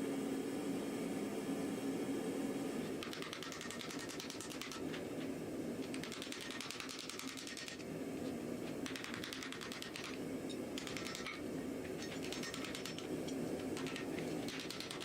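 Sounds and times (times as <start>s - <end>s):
power hammer striking hot iron: 3.0s - 5.1s, 5.8s - 7.8s, 8.8s - 15.0s.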